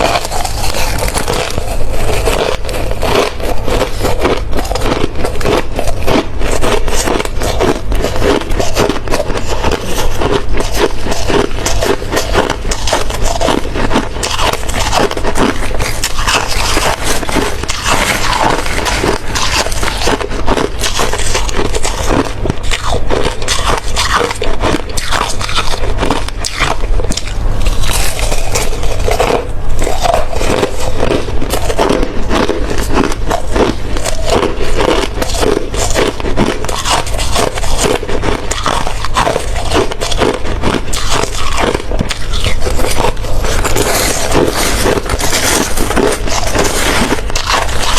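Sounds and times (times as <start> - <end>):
chewing crunching ice: 0.0 - 47.9.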